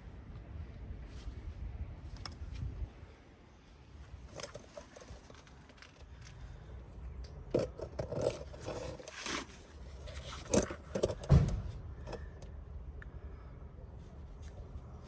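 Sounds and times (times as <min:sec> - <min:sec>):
heavy thump: 0:11.2 - 0:11.8.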